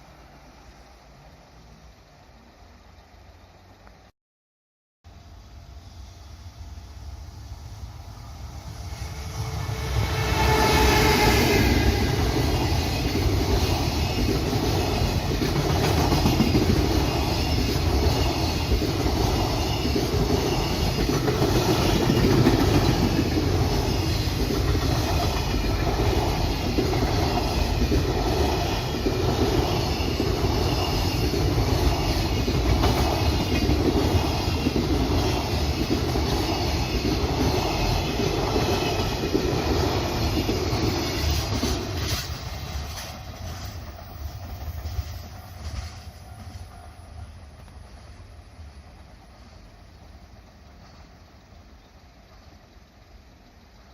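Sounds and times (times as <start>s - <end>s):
freight train rumbling past: 0.0s - 4.0s, 5.1s - 53.9s
wheels clacking over rail joints: 12.0s - 46.7s.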